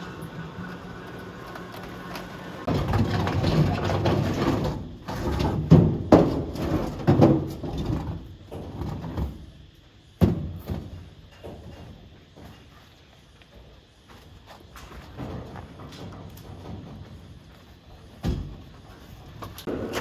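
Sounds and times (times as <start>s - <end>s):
heavy clunks and knocks: 2.7s - 9.4s, 18.2s - 18.8s.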